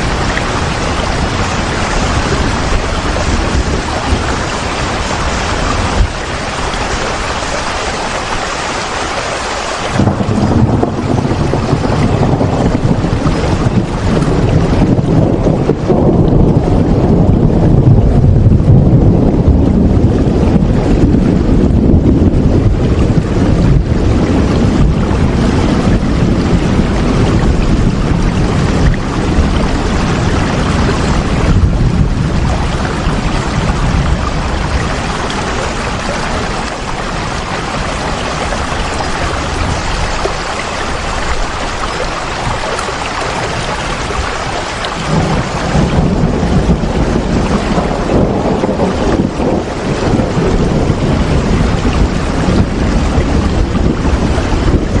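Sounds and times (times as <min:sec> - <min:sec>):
heavy rain falling: 0:00.0 - 0:55.0
deep low rumble: 0:10.0 - 0:37.1, 0:44.8 - 0:55.0.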